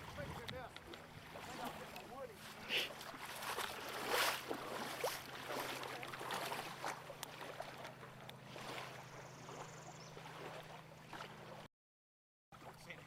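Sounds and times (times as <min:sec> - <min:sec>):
water splashing against boat hull: 0:00.0 - 0:11.6
steady low hum: 0:00.1 - 0:11.7.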